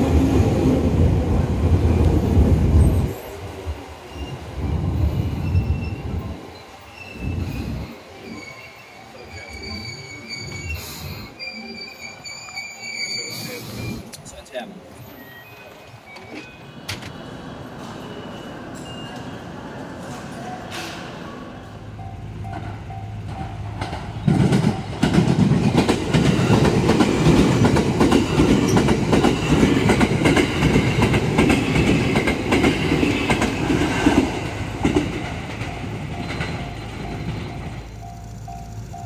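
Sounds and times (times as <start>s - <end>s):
train wheels clattering over joints: 22.5s - 39.0s.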